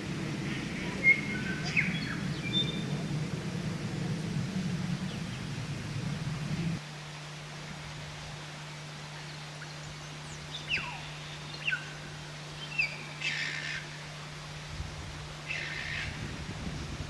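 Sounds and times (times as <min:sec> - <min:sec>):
birds whistling: 0:00.0 - 0:03.3, 0:10.3 - 0:12.0
steady low hum: 0:00.0 - 0:17.0
bird harsh chatter: 0:00.4 - 0:03.2.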